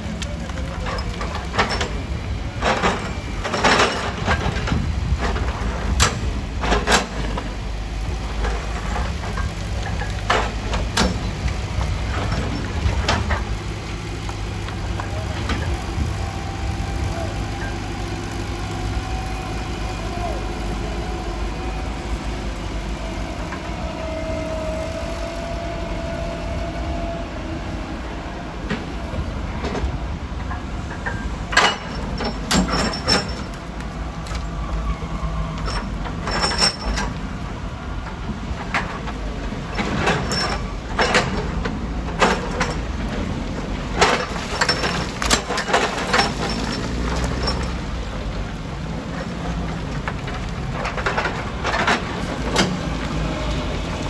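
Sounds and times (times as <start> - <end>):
heavy diesel machinery running: 0.0 - 54.0
rock clanging on steel: 31.0 - 33.9, 42.2 - 53.0.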